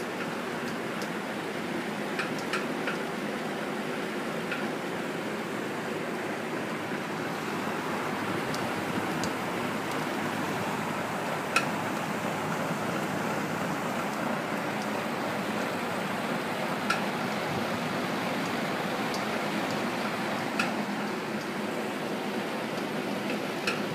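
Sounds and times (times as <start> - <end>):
exhaust fan running: 0.0 - 23.9
sharp knocks from fan motor: 2.1 - 3.0, 11.5 - 11.8, 16.8 - 17.8, 18.4 - 21.5, 22.8 - 23.9.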